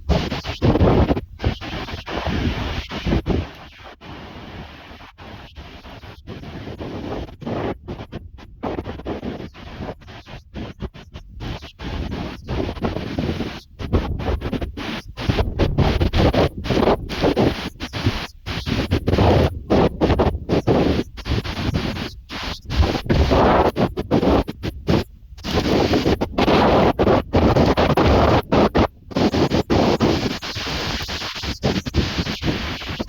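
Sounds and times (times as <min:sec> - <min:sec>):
wind buffeting microphone: 0:11.4 - 0:22.1.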